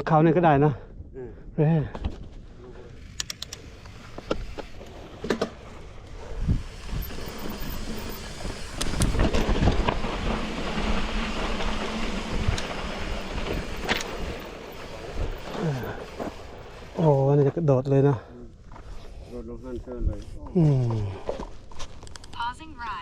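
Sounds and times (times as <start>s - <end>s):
bicycle tyre rumble: 1.1s - 22.9s
bicycle frame rattle: 2.8s - 17.4s
wind on microphone: 6.2s - 12.7s.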